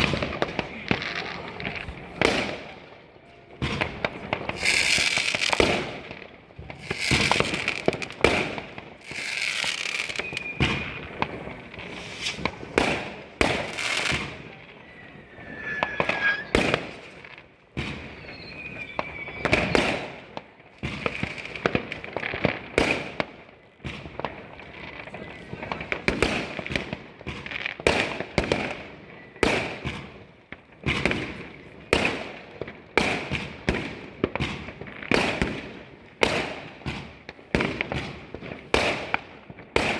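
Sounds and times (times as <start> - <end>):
fireworks banging: 0.0 - 23.3
fireworks crackling: 0.0 - 28.9
short firework whistles: 4.5 - 6.0, 6.7 - 21.6.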